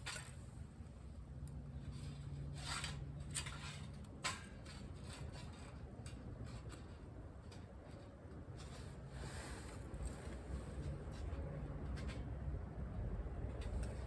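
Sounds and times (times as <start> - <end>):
scraping rustling handling sounds: 1.5 - 12.6.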